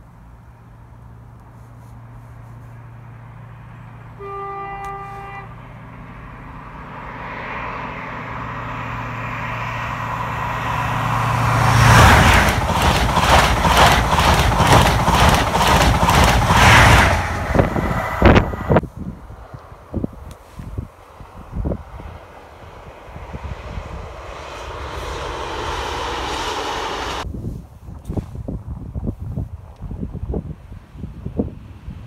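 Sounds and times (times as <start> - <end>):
train passing with wheel clatter: 2.1 - 18.8, 20.4 - 27.3
train horn: 4.2 - 5.6.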